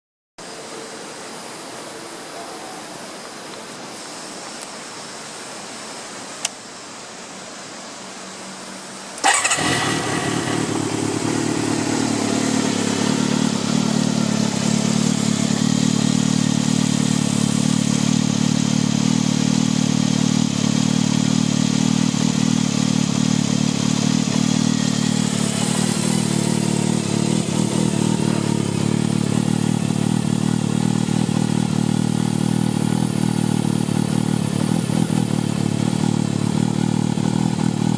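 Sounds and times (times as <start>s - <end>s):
motorcycle engine starting and idling: 9.2s - 37.9s.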